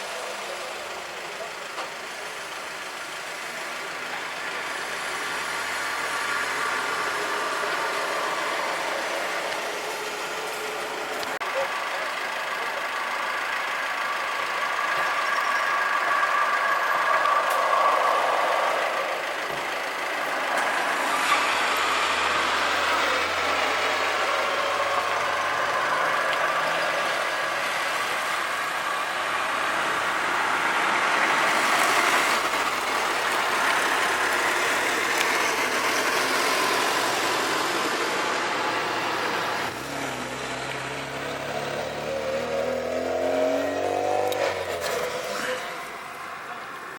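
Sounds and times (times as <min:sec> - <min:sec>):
vehicle engines idling: 0:00.0 - 0:46.9.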